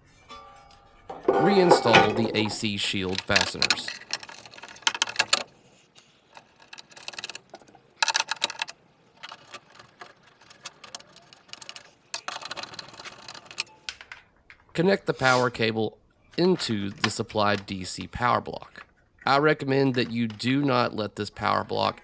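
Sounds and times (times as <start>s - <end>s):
nut driver metallic clicking: 3.1s - 13.7s.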